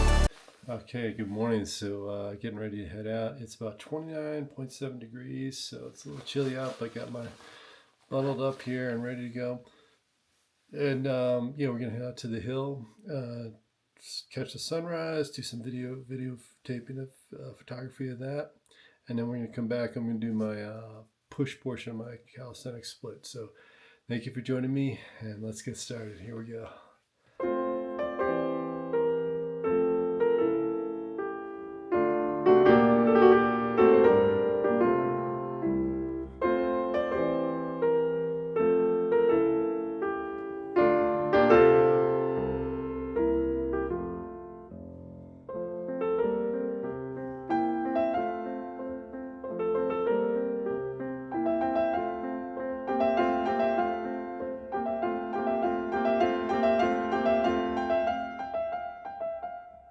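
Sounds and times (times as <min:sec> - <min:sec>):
slow piano music: 0:00.0 - 0:00.3, 0:27.4 - 0:59.9.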